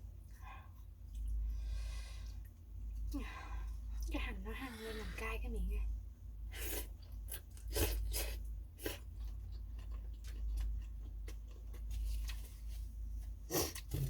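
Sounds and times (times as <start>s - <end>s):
steady low hum: 0.0s - 14.0s
person chewing food: 0.2s - 3.1s, 6.6s - 14.0s.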